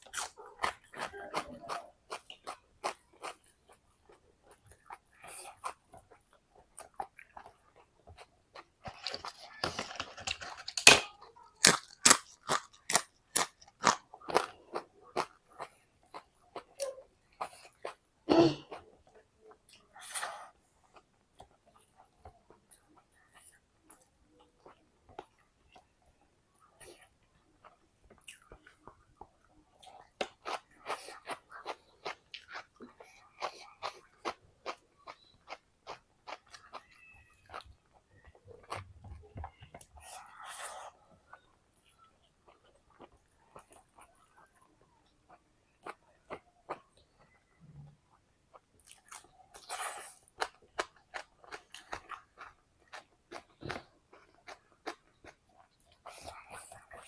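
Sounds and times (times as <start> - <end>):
person chewing crunchy food: 0.0 - 18.1, 27.7 - 44.6, 48.5 - 57.0.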